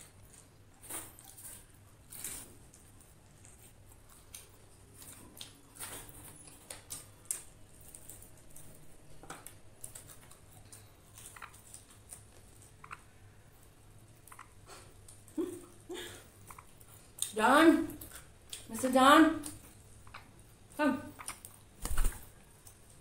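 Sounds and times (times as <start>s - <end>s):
chewing crispy chicken: 0.0s - 13.4s.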